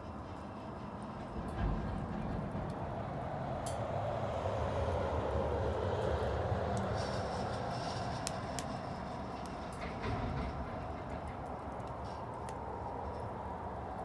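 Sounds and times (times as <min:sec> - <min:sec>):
low fire rumble: 0:00.0 - 0:14.0
bonfire crackling and popping: 0:02.0 - 0:14.0.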